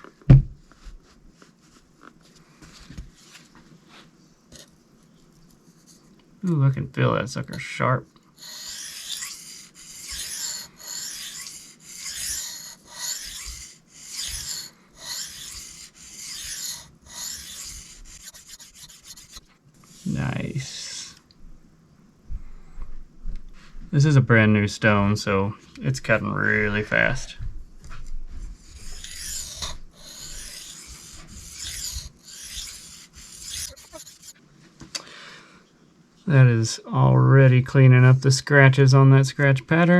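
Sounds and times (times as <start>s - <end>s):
knife scraping on sharpening stone: 8.4s - 19.4s, 28.8s - 34.3s.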